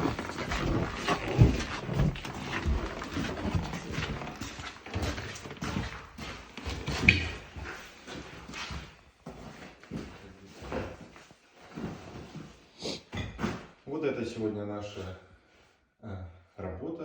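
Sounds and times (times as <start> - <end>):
footsteps on wooden floorboards: 0.0 - 12.6.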